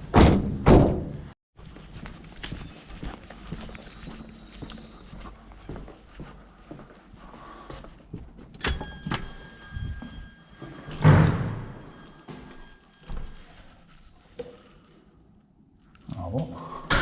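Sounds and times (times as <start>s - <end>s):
loud heavy thud: 0.1s - 1.3s.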